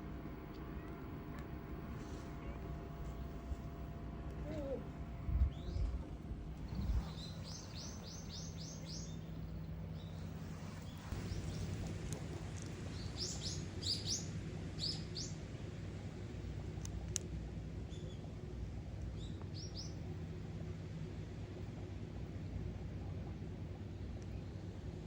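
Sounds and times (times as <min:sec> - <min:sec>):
steady low hum: 0:00.0 - 0:25.0
songbird chirping: 0:06.6 - 0:12.0, 0:12.6 - 0:15.4.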